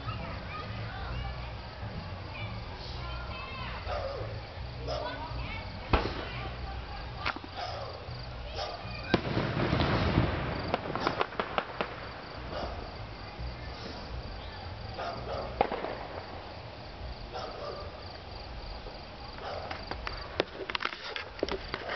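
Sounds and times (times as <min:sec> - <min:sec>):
crickets chirping: 0:00.0 - 0:21.9
fireworks crackles and pops: 0:05.4 - 0:07.6, 0:08.2 - 0:17.1, 0:18.1 - 0:21.9
distant fireworks bangs: 0:05.8 - 0:18.0.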